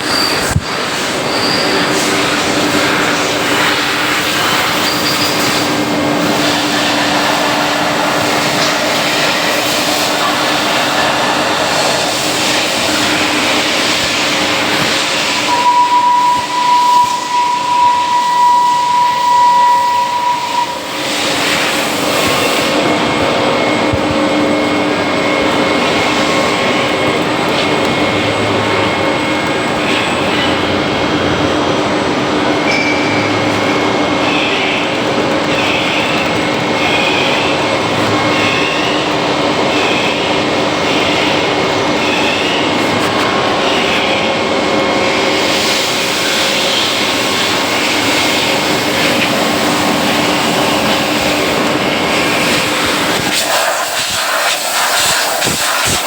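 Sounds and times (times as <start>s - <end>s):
machine rushing noise: 0.0s - 27.2s
high steady whine: 0.0s - 56.0s.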